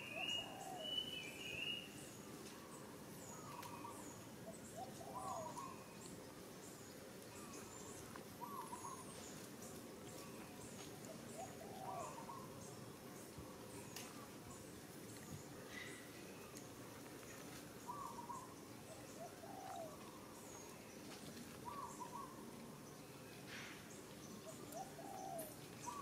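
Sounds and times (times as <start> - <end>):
bird hooting call: 0.0 - 1.9, 3.3 - 6.0, 8.4 - 9.1, 11.1 - 12.6, 17.9 - 18.5, 19.2 - 20.3, 21.6 - 22.4, 24.4 - 26.0
soft background hiss: 0.0 - 26.0.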